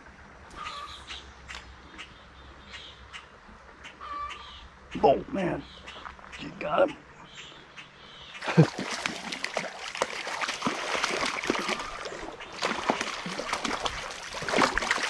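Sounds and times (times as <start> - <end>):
fish splashing in water: 8.4 - 15.0.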